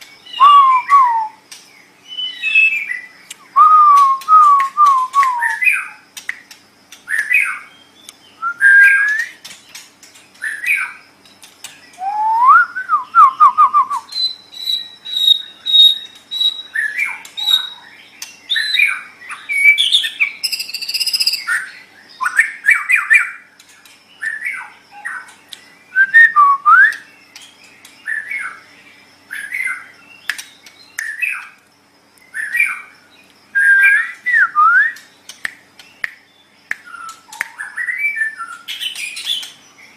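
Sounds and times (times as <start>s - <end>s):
bird singing whistled phrases: 0.2s - 1.4s, 2.0s - 6.0s, 7.1s - 9.4s, 11.9s - 17.8s, 18.5s - 23.4s, 25.9s - 27.2s, 33.5s - 35.1s, 35.9s - 39.5s.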